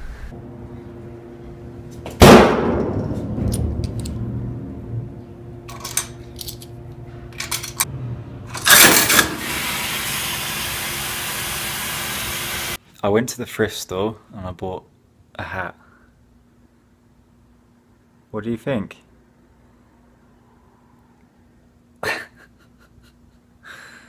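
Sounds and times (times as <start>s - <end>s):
low hum: 0.0s - 9.4s
loud ringing thump: 2.2s - 3.8s.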